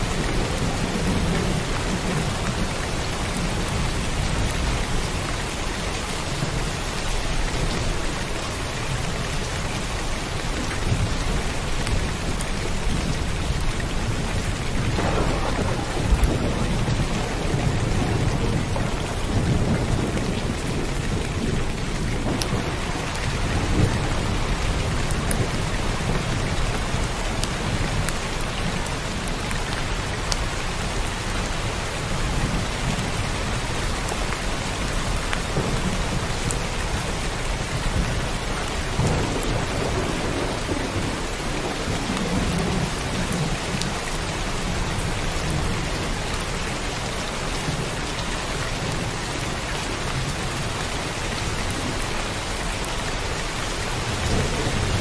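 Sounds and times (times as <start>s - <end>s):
heavy rain falling: 0.0s - 55.0s
rolling thunder: 10.9s - 28.1s, 35.0s - 45.7s.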